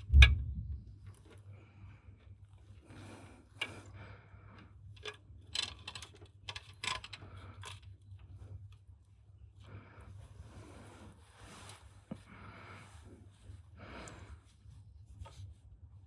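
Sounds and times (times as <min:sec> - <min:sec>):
low hum: 0:00.0 - 0:02.2
tools and parts clicking: 0:04.9 - 0:08.2.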